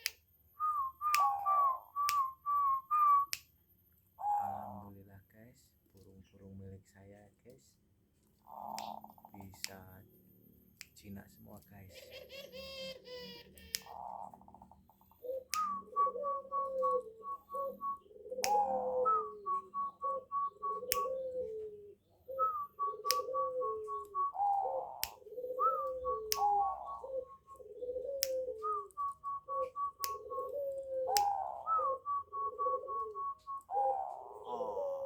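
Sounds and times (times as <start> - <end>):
doves cooing: 0.6 - 3.3, 4.2 - 5.1, 11.8 - 35.0
sharp clicks: 8.7 - 10.0, 13.6 - 15.8, 20.9 - 21.2, 25.0 - 25.2, 25.8 - 26.5.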